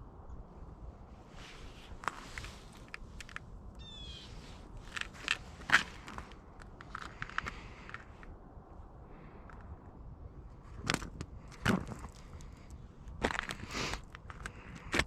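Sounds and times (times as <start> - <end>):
footsteps crunching on snow: 1.4 - 3.4, 4.3 - 8.0, 13.2 - 15.0.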